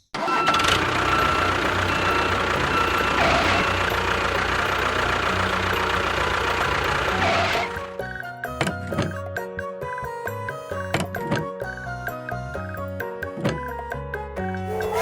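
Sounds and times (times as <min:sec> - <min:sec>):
engine running steadily: 0:00.2 - 0:09.2.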